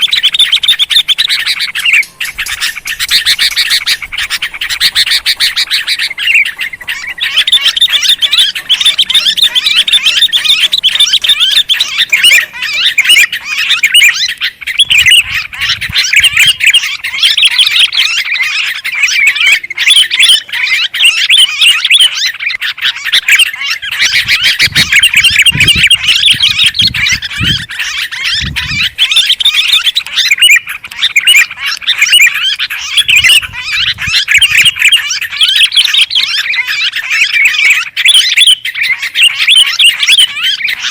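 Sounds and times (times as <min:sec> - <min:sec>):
bulbuls chattering: 0:00.0 - 0:40.9.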